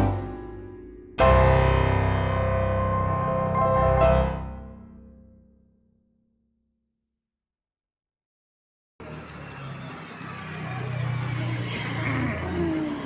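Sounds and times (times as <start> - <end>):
piano chords: 1.2 - 4.6.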